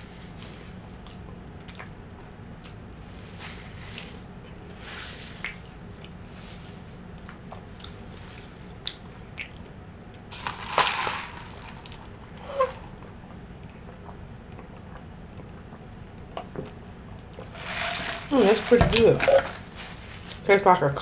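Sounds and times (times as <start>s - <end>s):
person chewing food: 0.5s - 2.9s, 5.4s - 17.6s.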